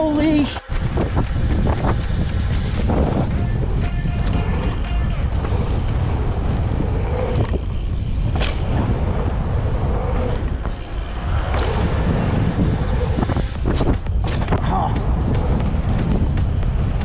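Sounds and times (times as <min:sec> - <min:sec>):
bike rattling and knocking: 0:00.0 - 0:03.3
wind rush on microphone: 0:00.0 - 0:17.0.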